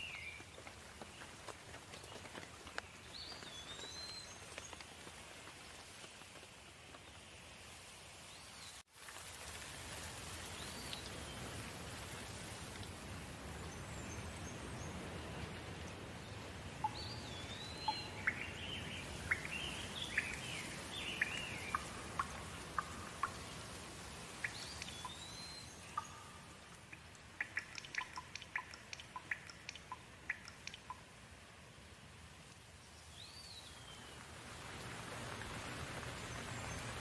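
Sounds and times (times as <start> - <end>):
steady rain: 0.0 - 37.0
bird calling: 16.8 - 23.5.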